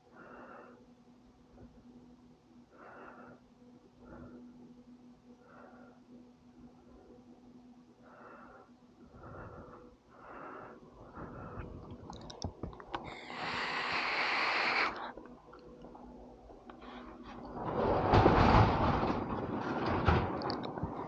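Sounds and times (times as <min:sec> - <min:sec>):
soft breathing: 0:00.0 - 0:01.9, 0:02.6 - 0:07.3, 0:07.9 - 0:17.5
faint steady hum: 0:00.0 - 0:21.0
clicks: 0:11.9 - 0:13.2
loud hiss: 0:13.1 - 0:15.1.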